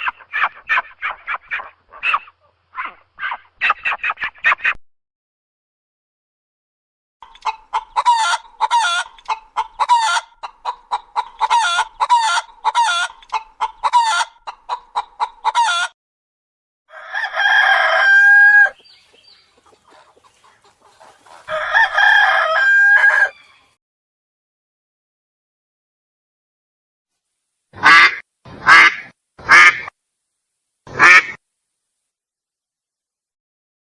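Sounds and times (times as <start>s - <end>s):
chickens clucking: 0.0s - 4.8s, 7.2s - 16.0s, 17.7s - 23.7s
rooster crowing: 16.9s - 18.8s, 21.5s - 23.8s.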